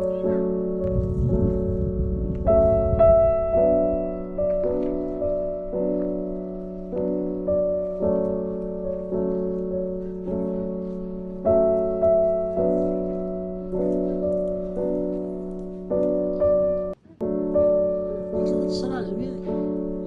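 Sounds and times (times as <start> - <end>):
gentle piano chords: 0.0 - 20.0
steady low note: 0.8 - 5.7.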